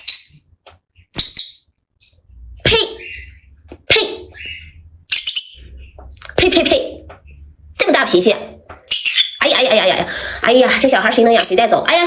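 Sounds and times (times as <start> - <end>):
parrot squawking: 2.6 - 6.8, 8.8 - 10.0.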